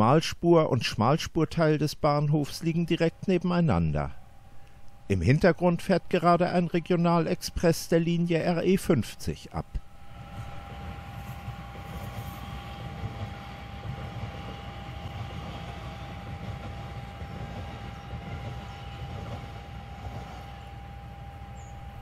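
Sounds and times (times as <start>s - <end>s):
constant high whine: 0.0s - 22.0s
train rumbling: 9.7s - 22.0s.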